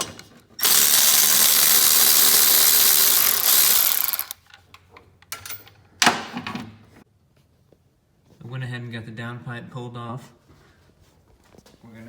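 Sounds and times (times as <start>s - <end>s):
impact wrench hammering: 0.6s - 4.4s.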